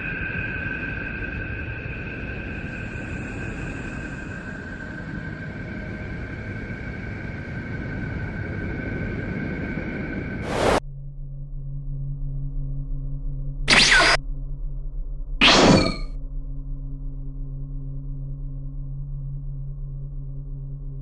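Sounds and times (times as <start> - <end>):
loud burst of noise: 10.4 - 10.8.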